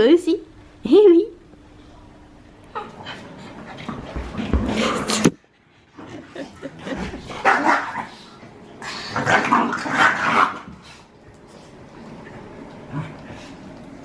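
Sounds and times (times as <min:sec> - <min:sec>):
dogs barking in play: 0:07.2 - 0:11.0.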